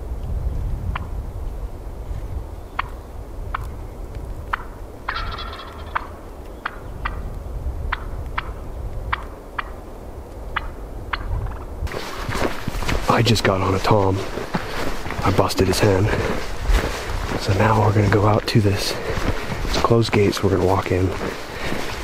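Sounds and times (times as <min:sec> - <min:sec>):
low rumble of wind: 0:00.0 - 0:22.0
turkey gobbling: 0:02.8 - 0:03.7, 0:04.5 - 0:07.2, 0:07.9 - 0:09.8, 0:10.6 - 0:11.7.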